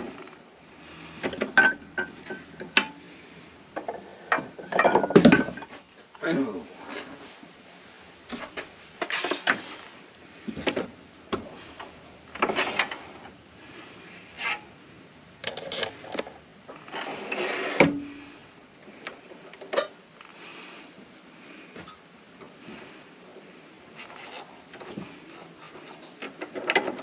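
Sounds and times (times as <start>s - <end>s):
metal tools clicking and clattering: 3.8s - 5.7s.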